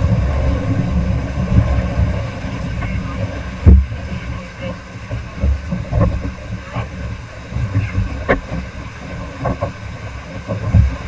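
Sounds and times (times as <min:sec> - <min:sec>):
sharp knocks or splashes: 0:00.0 - 0:04.0
river rapids rushing: 0:00.0 - 0:11.0
wind buffeting microphone: 0:00.0 - 0:11.0.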